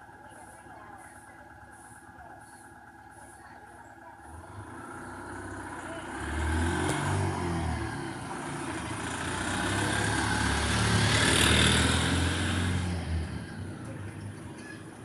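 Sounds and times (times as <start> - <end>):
vehicle engine passing by: 4.2 - 15.0.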